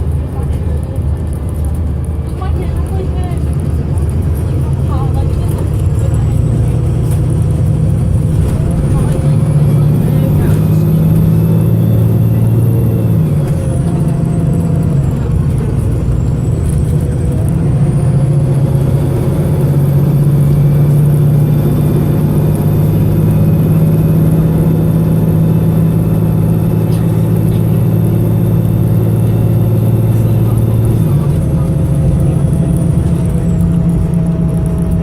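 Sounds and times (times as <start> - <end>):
bus diesel engine misfiring: 2.4 - 35.0.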